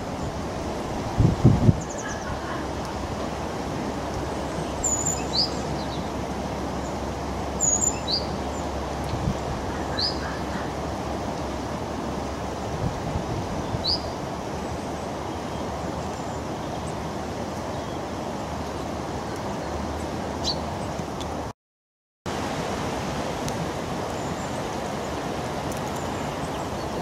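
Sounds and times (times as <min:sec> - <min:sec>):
outdoor background rush: 0:00.0 - 0:21.5, 0:22.3 - 0:27.0
songbird chirping: 0:01.7 - 0:03.0, 0:03.9 - 0:11.6.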